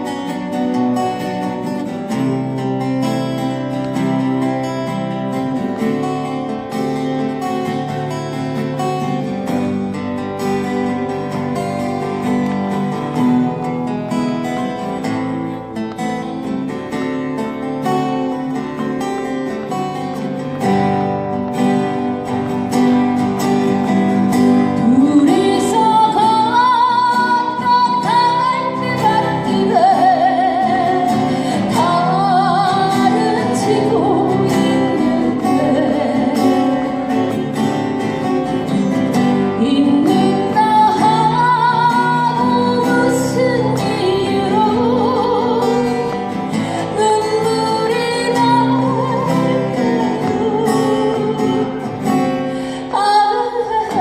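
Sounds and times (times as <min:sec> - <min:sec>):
strummed acoustic guitar: 0:00.0 - 0:54.0
woman singing: 0:24.4 - 0:38.1, 0:39.2 - 0:54.0.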